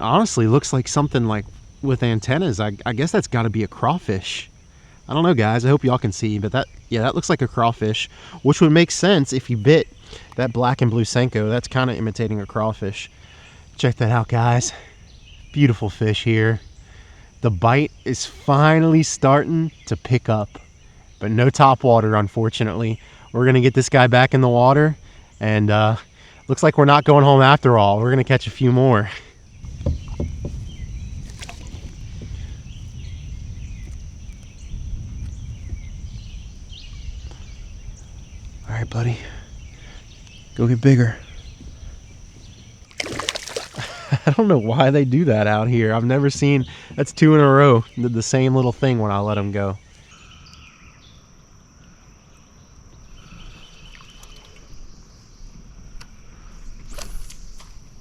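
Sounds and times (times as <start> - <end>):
high insect drone: 0.0 - 53.9
wind buffeting the microphone: 28.4 - 44.3
high-pitched insect buzz: 29.6 - 44.0
bird chirps: 32.6 - 44.1.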